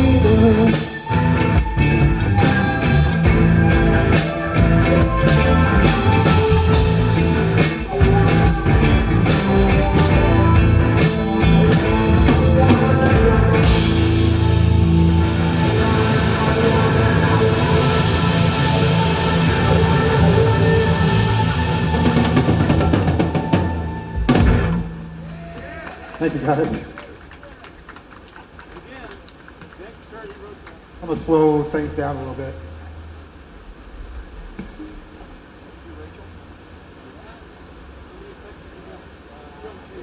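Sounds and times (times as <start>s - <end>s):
rock band playing: 0.0s - 25.4s
drums and cymbals: 0.0s - 25.6s.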